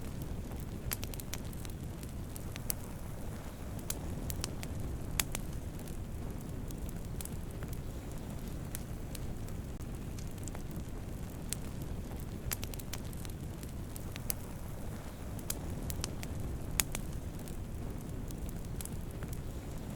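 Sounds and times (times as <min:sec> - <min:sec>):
campfire crackling and popping: 0:00.0 - 0:19.9.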